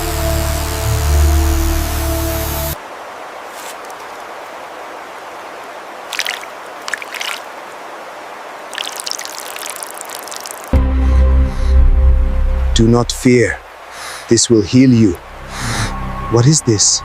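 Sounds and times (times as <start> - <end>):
stream water running: 0.0 - 10.9, 12.8 - 16.8
water splashing: 2.8 - 10.9.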